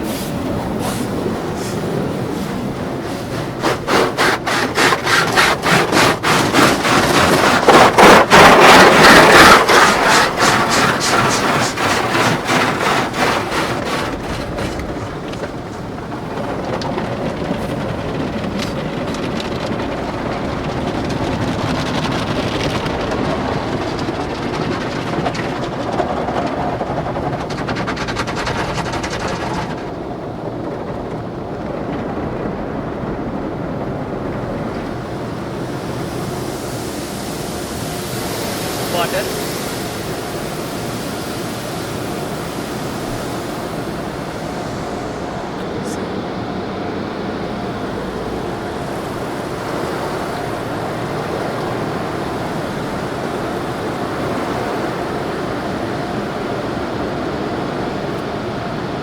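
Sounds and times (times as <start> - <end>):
cloth brushes slapping car body: 0.0 - 16.0
water spraying and scrubbing: 0.0 - 59.0.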